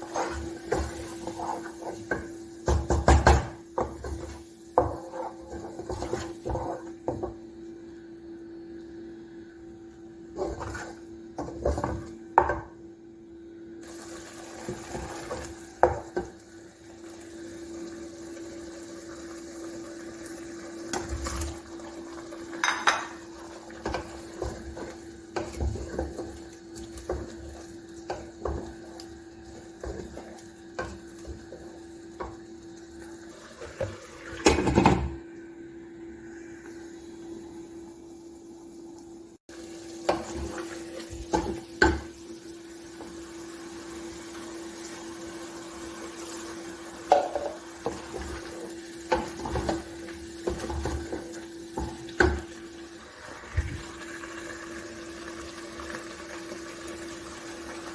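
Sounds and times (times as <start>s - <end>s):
utensils clinking against pots: 22.5s - 28.7s, 47.1s - 48.4s.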